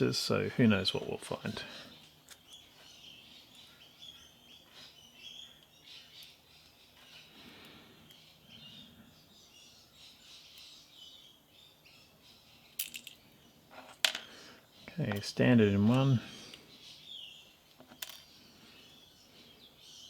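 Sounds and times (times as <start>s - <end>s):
faint bird chirps: 1.0s - 20.0s.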